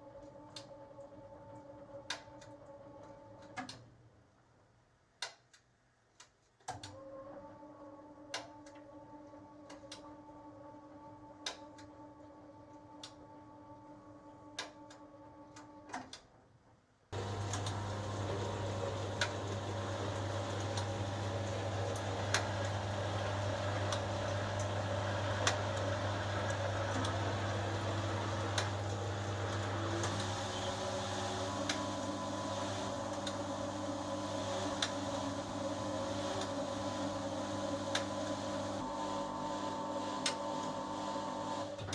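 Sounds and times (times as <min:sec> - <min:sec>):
washing machine motor hum: 0:17.2 - 0:41.9.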